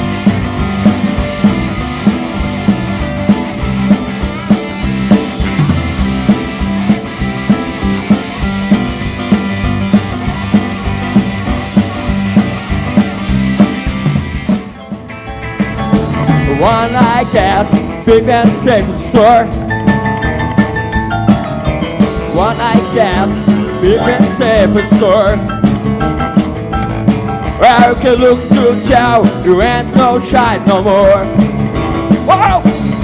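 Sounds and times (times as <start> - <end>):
drum kit steady beat: 0.0 - 33.0
electric guitar: 0.0 - 33.0.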